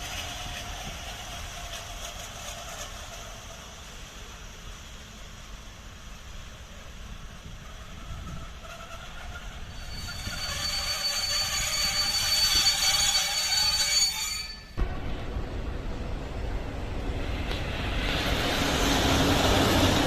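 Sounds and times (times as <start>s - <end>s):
train wheels rushing: 0.0s - 20.0s
high steady squeal: 6.7s - 14.9s
low rumble: 14.8s - 20.0s.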